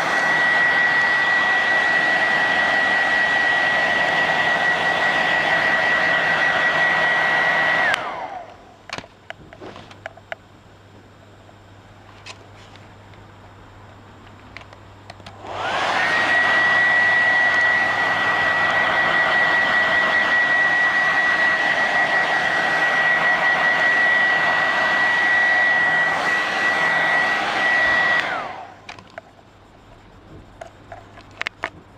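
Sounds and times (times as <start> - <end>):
hair dryer blowing with whine: 0.0 - 10.1, 14.6 - 29.3.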